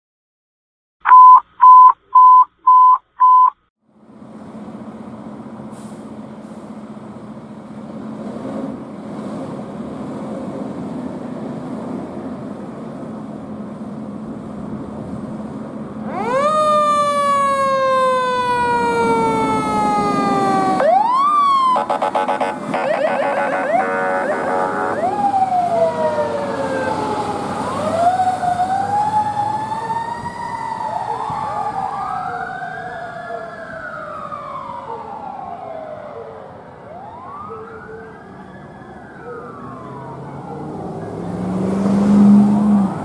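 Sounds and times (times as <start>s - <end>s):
short loud beeps: 1.1s - 3.6s
fire truck engine: 3.8s - 43.0s
siren wailing and warbling: 16.0s - 36.3s.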